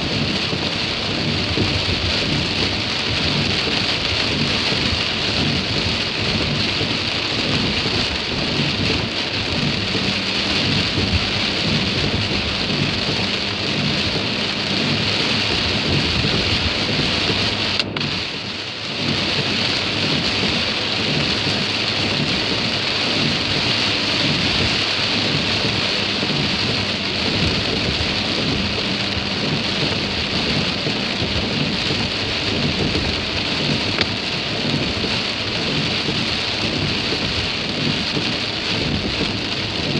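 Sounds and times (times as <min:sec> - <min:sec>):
rain on car body: 0:00.0 - 0:39.9
faint engine hum: 0:05.5 - 0:18.5.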